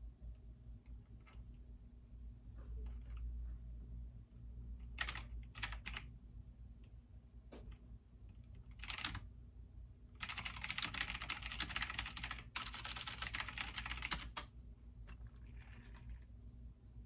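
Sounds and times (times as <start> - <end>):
computer keyboard typing: 4.8 - 6.1, 8.6 - 9.2, 10.2 - 14.5.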